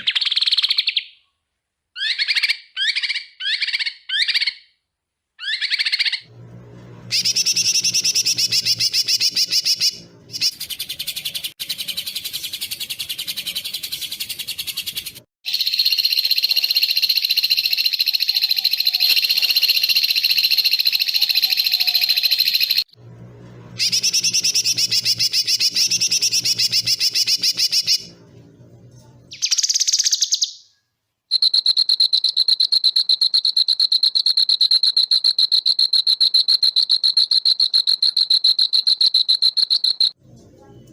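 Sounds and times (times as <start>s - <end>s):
high cricket-like trill: 15.5s - 22.9s, 31.3s - 40.2s.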